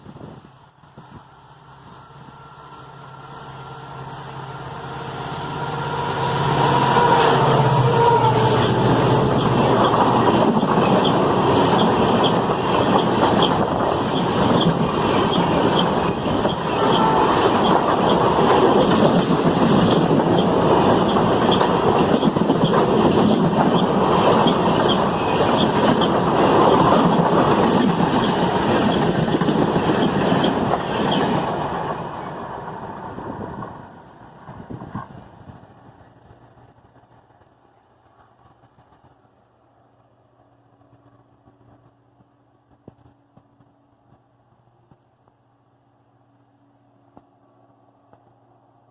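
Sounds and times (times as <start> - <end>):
train wheels clattering over rail joints: 9.2 - 32.0.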